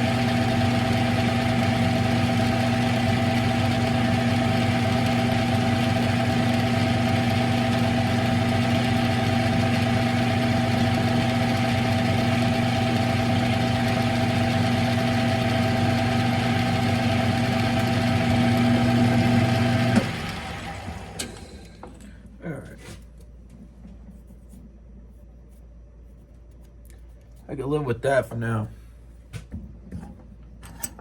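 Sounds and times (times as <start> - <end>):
lathe motor humming: 0.0 - 21.8.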